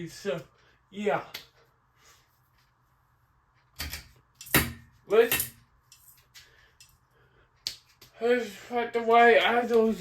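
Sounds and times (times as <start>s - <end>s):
man speaking: 8.2s - 10.0s.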